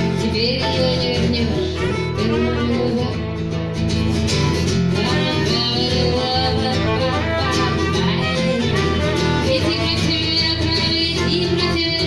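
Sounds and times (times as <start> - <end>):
acoustic guitar strumming: 0.0 - 12.0
violin playing: 5.1 - 11.7.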